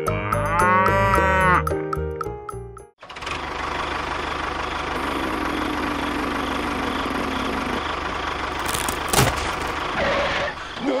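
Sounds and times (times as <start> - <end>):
tractor engine idling: 3.0 - 11.0.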